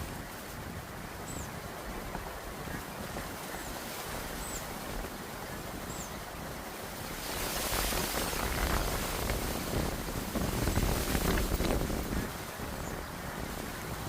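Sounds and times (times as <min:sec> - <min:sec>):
wind rushing: 0:06.9 - 0:14.0.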